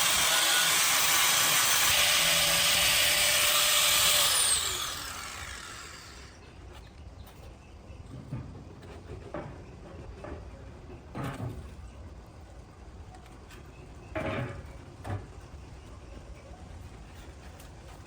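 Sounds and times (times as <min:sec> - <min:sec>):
low steady background noise: 0:04.0 - 0:18.0.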